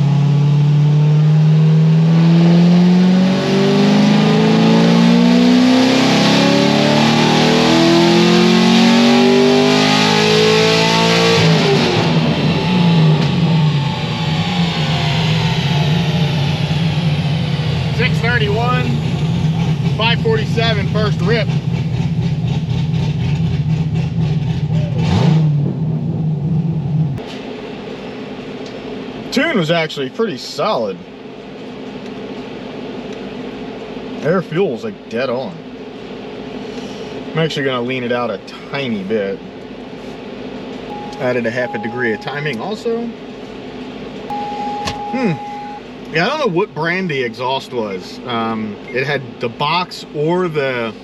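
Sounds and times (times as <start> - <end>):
car engine revving at full throttle: 0.0 - 27.2, 40.9 - 43.1, 44.3 - 46.5
car engine idling loudly: 12.0 - 25.2
exhaust crackling on coast-down: 12.0 - 27.2, 28.6 - 51.0
cooling fan humming: 27.2 - 51.0.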